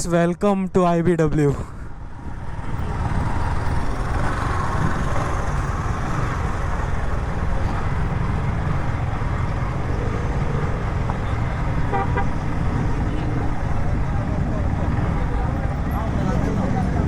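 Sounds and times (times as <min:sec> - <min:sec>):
traffic: 0:00.0 - 0:17.0
motorcycle engines: 0:01.4 - 0:17.0
voices: 0:05.0 - 0:17.0.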